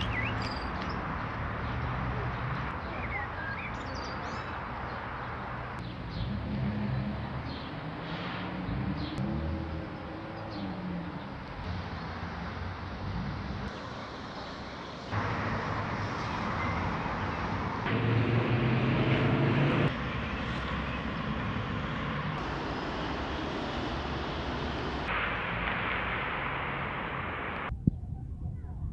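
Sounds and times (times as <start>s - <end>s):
steady traffic noise: 0.0s - 27.8s
passing vehicle hum: 4.6s - 27.7s.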